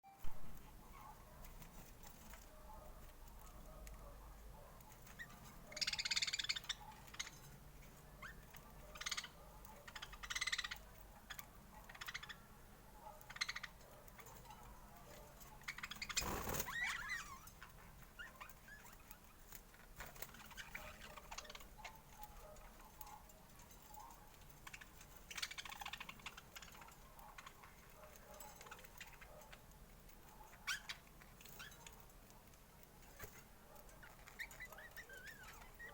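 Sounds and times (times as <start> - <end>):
budgerigars chirping: 5.1 - 7.4, 8.2 - 12.4, 13.2 - 13.8, 15.6 - 17.4.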